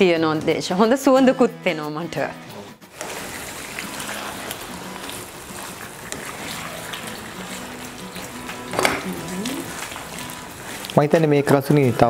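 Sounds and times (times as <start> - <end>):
chicken sizzling in oil: 2.9 - 12.0.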